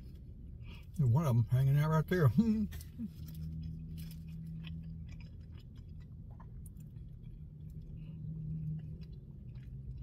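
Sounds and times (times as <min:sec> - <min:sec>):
low steady hum: 0:00.0 - 0:10.0
man chewing with mouth closed: 0:02.6 - 0:10.0.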